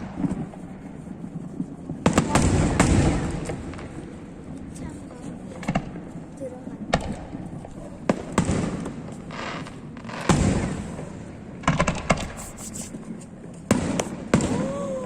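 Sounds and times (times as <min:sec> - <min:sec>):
fireworks crackling: 0:00.0 - 0:15.0
fireworks booming: 0:01.5 - 0:04.6, 0:06.8 - 0:12.6, 0:13.7 - 0:15.0.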